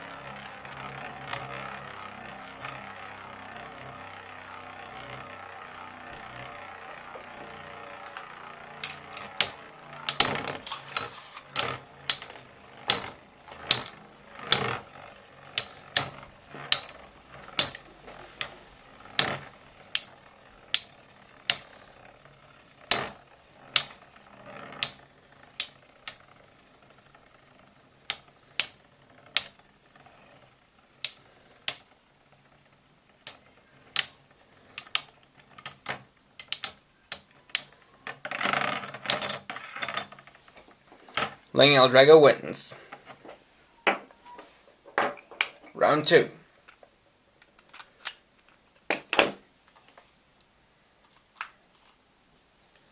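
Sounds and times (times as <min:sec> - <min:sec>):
metal spinning tops clacking: 0:00.0 - 0:41.6.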